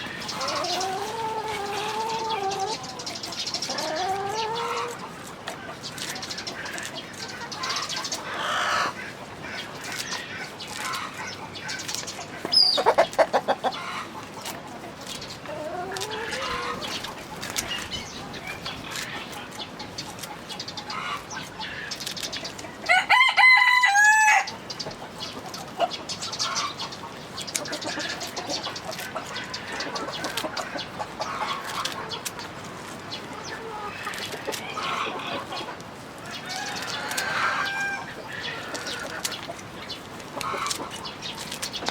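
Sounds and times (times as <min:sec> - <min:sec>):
chickens clucking: 0:00.0 - 0:41.9
rooster crowing: 0:22.9 - 0:24.5.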